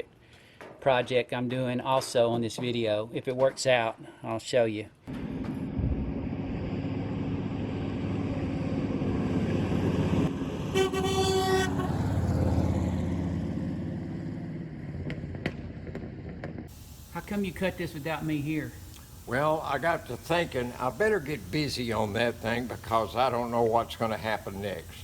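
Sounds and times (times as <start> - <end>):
vehicle engine running: 5.1 - 18.6
horn toot: 10.5 - 12.6.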